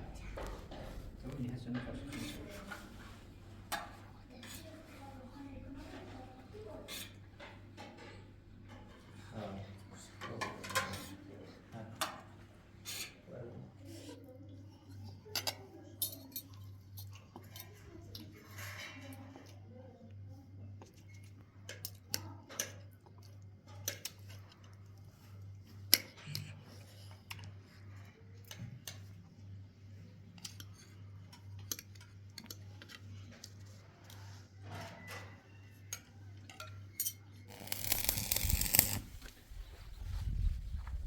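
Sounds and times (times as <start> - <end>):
steady low hum: 0.0 - 4.4
metallic clicks of tools: 36.6 - 39.0.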